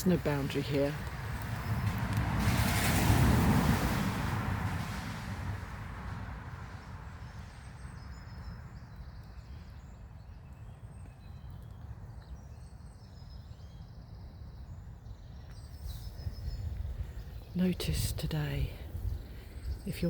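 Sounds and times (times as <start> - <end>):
small birds chirping: 7.1 - 20.0.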